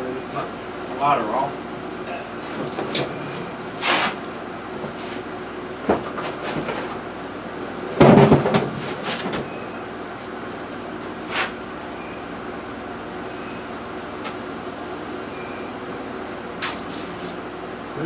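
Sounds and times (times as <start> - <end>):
steady low hum: 0.0 - 18.0
objects clattering on workbench: 2.4 - 4.2, 4.8 - 7.0, 8.0 - 9.5.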